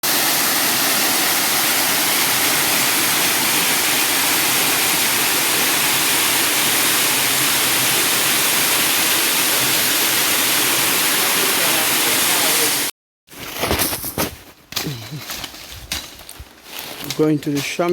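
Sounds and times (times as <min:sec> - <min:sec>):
rushing river water: 0:00.0 - 0:12.9.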